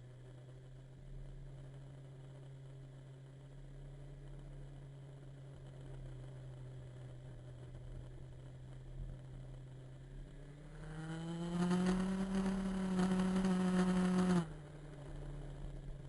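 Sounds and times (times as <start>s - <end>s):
low steady engine hum: 0.0s - 16.0s
motorcycle engine revving: 10.6s - 16.0s.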